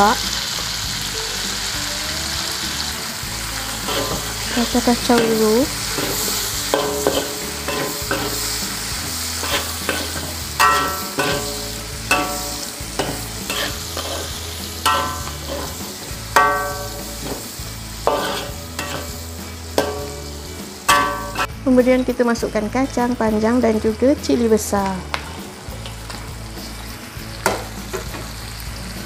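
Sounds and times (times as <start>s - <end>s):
vegetables sizzling in hot oil: 0.0s - 29.0s
spatula scraping and knocking wok: 2.7s - 22.1s, 25.0s - 28.4s
wok ringing: 3.4s - 22.4s, 25.1s - 26.3s.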